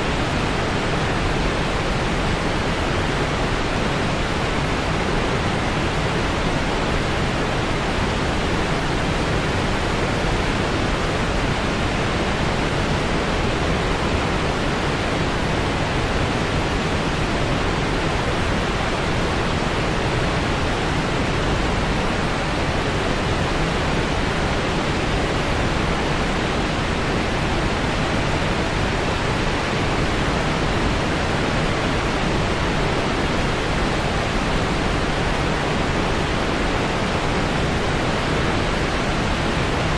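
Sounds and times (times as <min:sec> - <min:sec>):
steady low hiss: 0:00.0 - 0:39.9.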